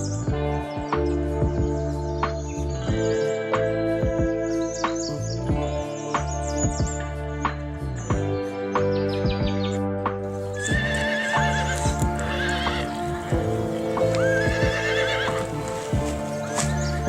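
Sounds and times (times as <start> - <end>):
background music: 0.0 - 17.0
horse whinnying: 10.3 - 17.0.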